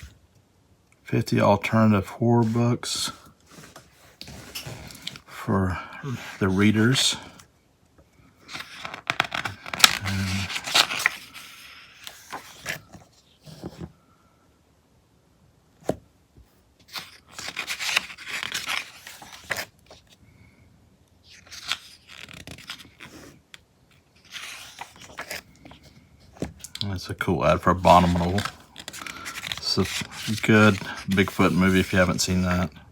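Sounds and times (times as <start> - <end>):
magazine pages rustling: 1.6 - 5.5, 6.1 - 7.4, 8.4 - 13.9, 16.8 - 20.2, 21.2 - 32.7.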